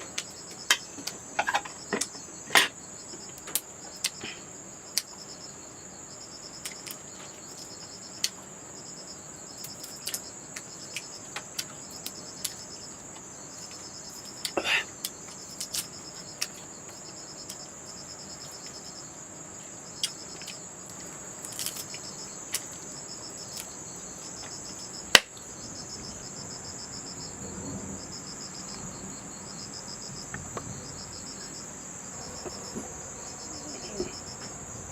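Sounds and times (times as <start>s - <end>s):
insects trilling: 0.0s - 34.9s
pulsing insect chirp: 0.0s - 34.9s.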